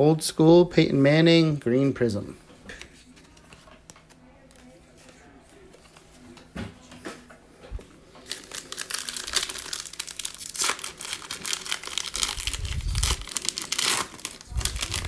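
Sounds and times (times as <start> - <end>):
foil wrapper crinkling: 8.1 - 15.0.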